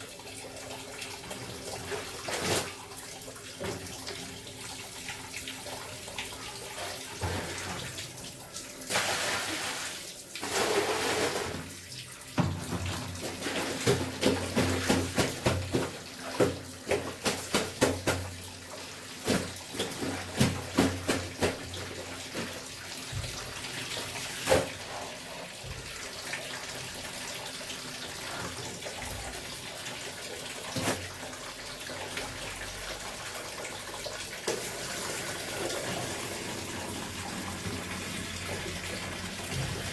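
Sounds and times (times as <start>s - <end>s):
water running from tap: 0.0s - 39.9s.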